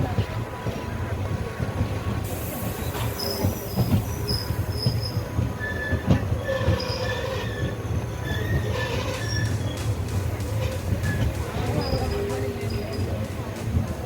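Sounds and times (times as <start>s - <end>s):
train knocks: 0.0s - 14.0s
train rumbling on rails: 0.0s - 14.0s
train wheels squealing: 2.3s - 13.4s.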